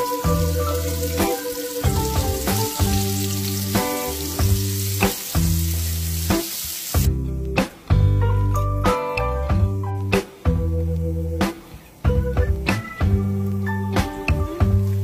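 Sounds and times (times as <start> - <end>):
food sizzling in hot oil: 0.0 - 7.2
background music: 0.0 - 15.0.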